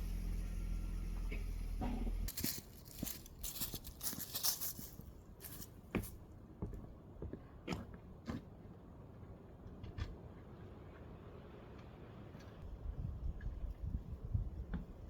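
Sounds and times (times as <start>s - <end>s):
rustling and crinkling: 2.3s - 6.2s.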